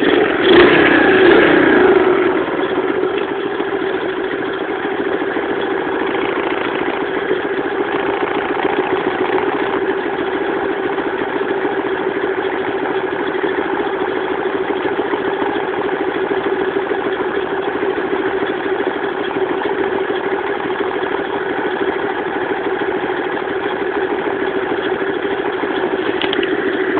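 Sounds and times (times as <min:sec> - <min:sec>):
motorbike engine idling: 0:00.0 - 0:26.9.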